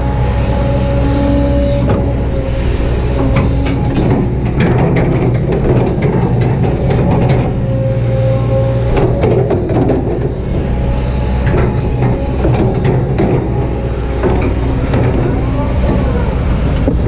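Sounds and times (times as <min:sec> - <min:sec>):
diesel engine under load: 0:00.0 - 0:17.0
hydraulic whine: 0:00.0 - 0:17.0
excavator bucket knocks and clanks: 0:03.1 - 0:07.8, 0:08.8 - 0:17.0.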